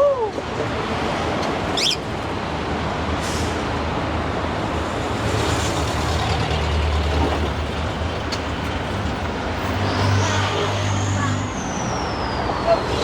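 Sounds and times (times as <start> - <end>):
road noise: 0.0 - 13.0
truck engine rumble: 0.4 - 13.0.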